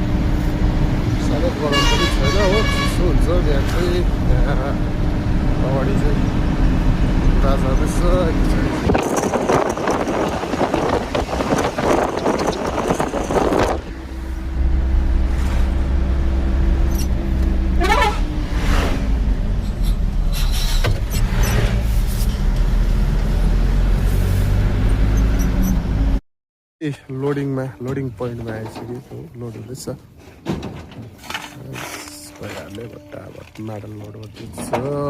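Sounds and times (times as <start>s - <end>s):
road and wind rush: 0.0s - 26.2s.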